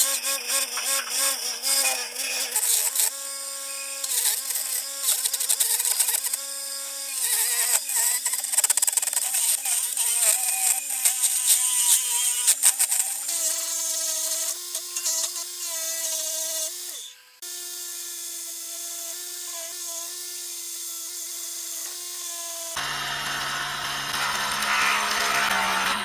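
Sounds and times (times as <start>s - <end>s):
power tool motor whining: 0.0s - 26.0s
rough noisy machine: 22.8s - 26.0s.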